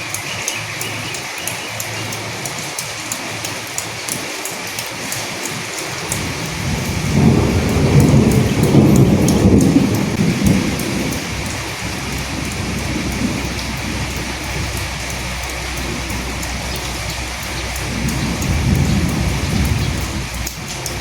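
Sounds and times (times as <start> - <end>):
steady rain with ticking drops: 0.0 - 21.0
low roll of thunder: 6.1 - 21.0.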